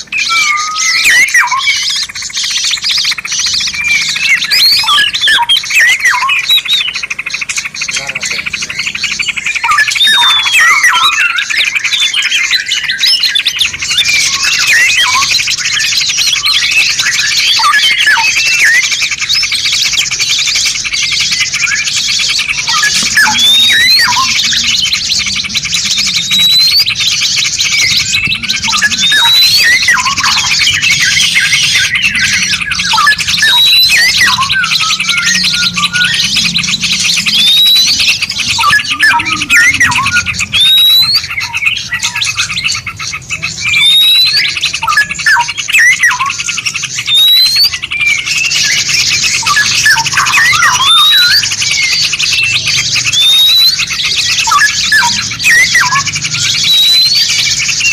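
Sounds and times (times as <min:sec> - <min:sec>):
songbirds chirping and twittering: 0:00.0 - 0:57.9
sharp rising whistle: 0:27.7 - 0:42.3.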